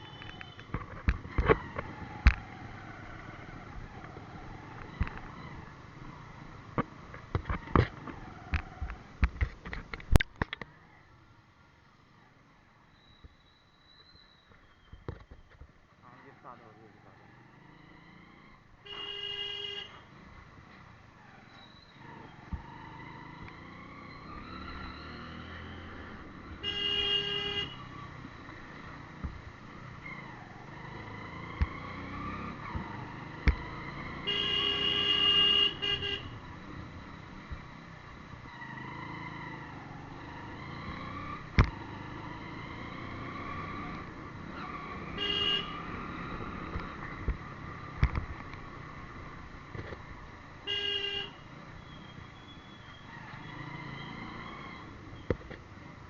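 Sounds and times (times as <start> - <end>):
motorcycle engine revving: 0.0 - 6.6, 16.0 - 56.0
vehicle horn honking: 18.8 - 20.0, 26.6 - 27.9, 34.2 - 36.4, 45.1 - 45.8, 50.7 - 51.4.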